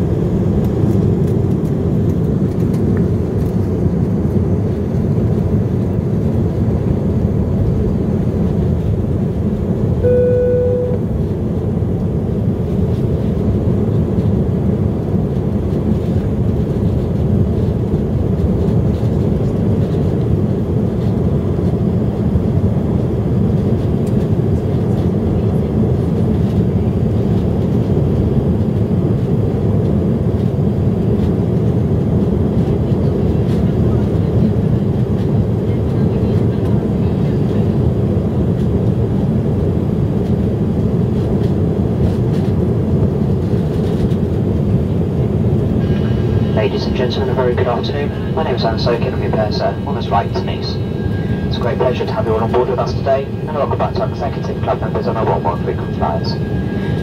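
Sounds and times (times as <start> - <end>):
airliner cabin engine noise: 0.0 - 57.0
cabin chime: 10.0 - 11.1.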